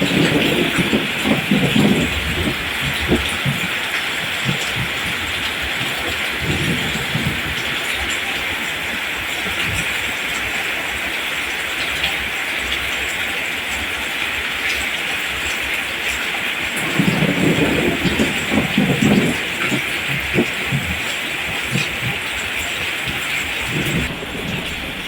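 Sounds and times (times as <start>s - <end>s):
steady rain hiss: 0.0s - 25.0s
uneven low rumbling: 16.8s - 25.0s.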